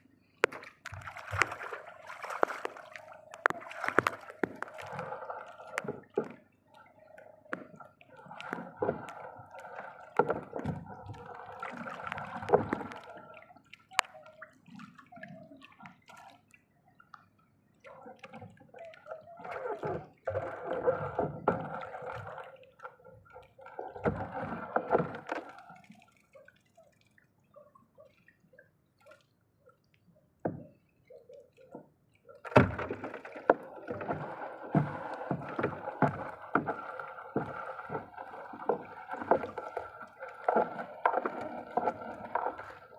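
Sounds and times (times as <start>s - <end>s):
water splashing and gurgling: 0.0s - 42.9s.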